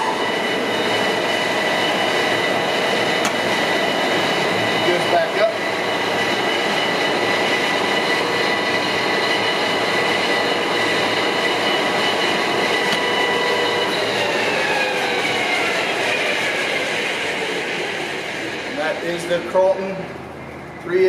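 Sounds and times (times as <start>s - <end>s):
drill gear whine: 0.0s - 19.7s.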